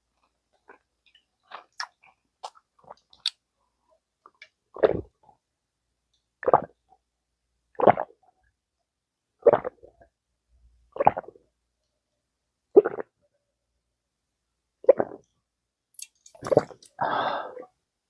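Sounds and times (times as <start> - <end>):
wet mouth eating sounds: 0.7 - 3.4, 16.0 - 17.0.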